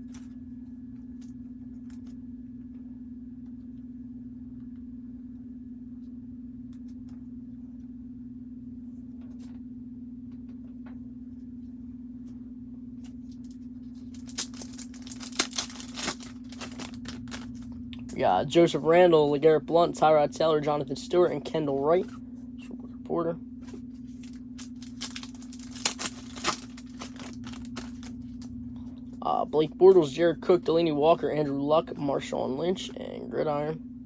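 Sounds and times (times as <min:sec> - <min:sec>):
low steady hum: 0:00.0 - 0:34.0
wrapper torn open and crinkling: 0:13.4 - 0:17.6, 0:24.2 - 0:28.5.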